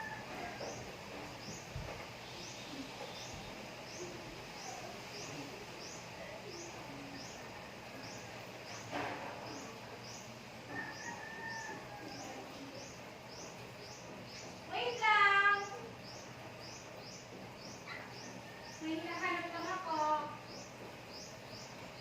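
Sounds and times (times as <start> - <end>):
bird chirping: 9.5 - 22.0.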